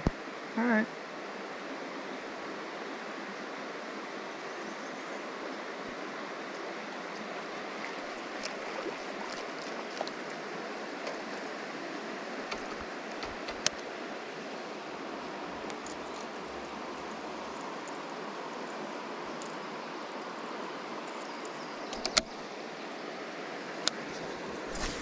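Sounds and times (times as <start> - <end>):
flowing river water: 0.0 - 25.0
small clicks: 12.5 - 13.8, 21.1 - 22.4.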